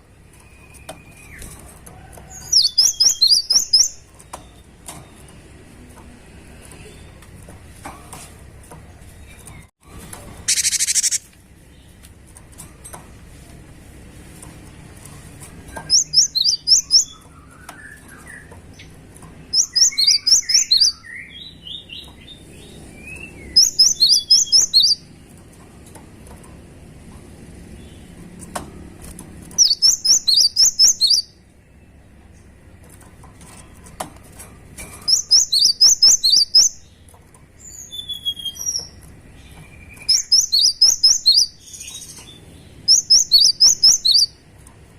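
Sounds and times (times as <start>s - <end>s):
soft low bird chirps: 10.5s - 12.0s.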